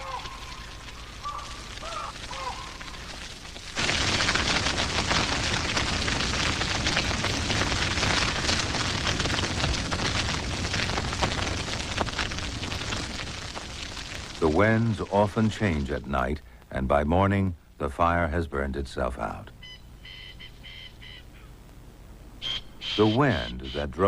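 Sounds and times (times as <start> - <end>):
short bird calls: 0.0 - 3.0, 19.6 - 21.6, 22.4 - 23.9
low rush of fire: 0.0 - 16.8
grass fire crackling and popping: 0.0 - 17.1.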